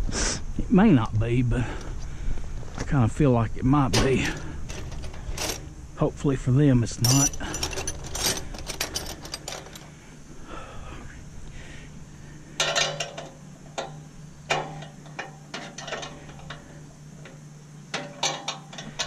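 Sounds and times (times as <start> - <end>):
low steady hum: 0.0 - 19.0
clinks of hand tools and metal parts: 3.9 - 5.8, 7.0 - 9.9, 12.6 - 19.0.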